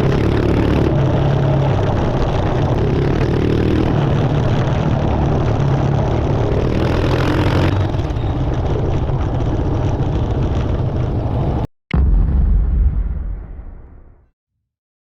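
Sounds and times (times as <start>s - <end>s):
motorcycle engine running: 0.0s - 11.6s
wind and road noise: 0.0s - 11.7s.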